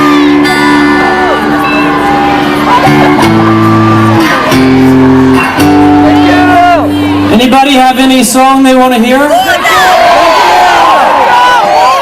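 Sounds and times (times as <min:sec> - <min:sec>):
guitar strumming chords: 0:00.0 - 0:08.4
crowd shouting and cheering: 0:00.0 - 0:12.0.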